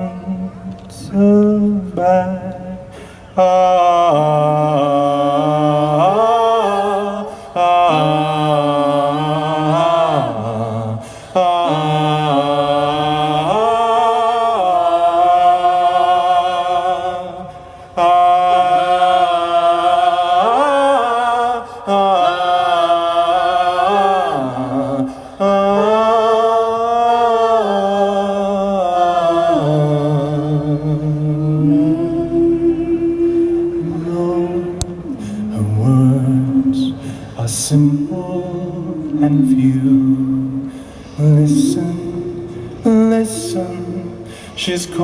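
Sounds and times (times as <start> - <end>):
lower steady note: 29.6 - 44.3
man singing held notes: 29.8 - 45.0.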